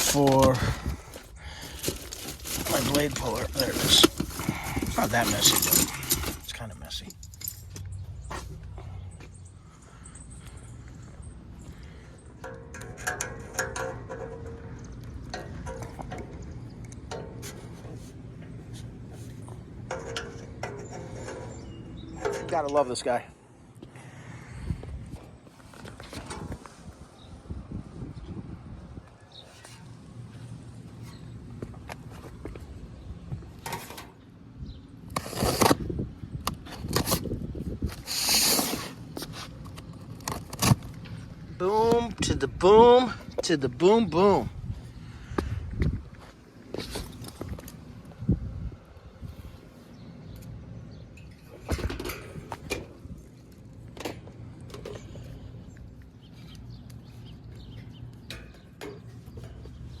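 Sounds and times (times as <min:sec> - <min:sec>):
hand tools clicking and knocking: 0:00.0 - 0:07.9, 0:12.4 - 0:18.0, 0:19.8 - 0:22.9, 0:56.5 - 1:00.0
steady low hum: 0:00.0 - 1:00.0
hand tool clicks and scrapes: 0:01.7 - 0:08.4.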